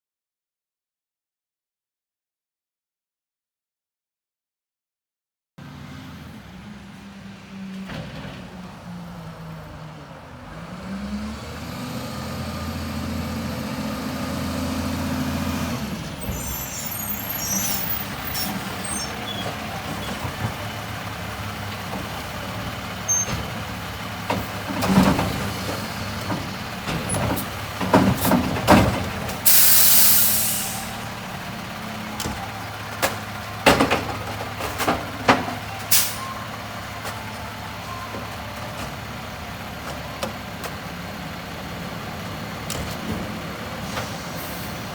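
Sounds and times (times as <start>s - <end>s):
garbage truck engine running: 5.6s - 44.9s
sharp knocks and bangs: 24.2s - 29.4s
air brake hiss: 29.4s - 31.0s, 43.8s - 44.8s.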